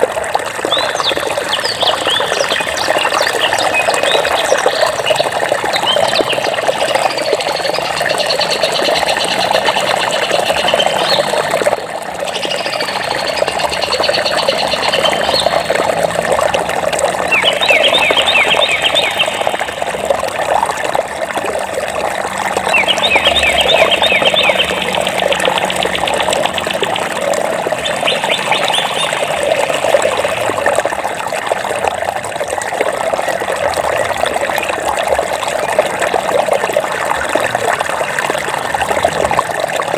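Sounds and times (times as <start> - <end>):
flowing stream water: 0.0 - 39.9
songbirds chirping: 0.6 - 11.6, 12.2 - 16.0, 17.1 - 20.2, 22.5 - 30.7.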